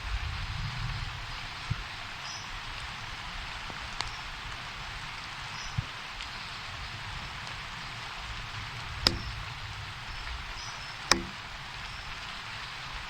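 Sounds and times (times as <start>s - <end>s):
steady rain-like hiss: 0.0s - 13.0s
sharp click: 9.1s - 9.4s, 11.1s - 11.5s
soft thump: 9.1s - 9.4s, 11.1s - 11.5s.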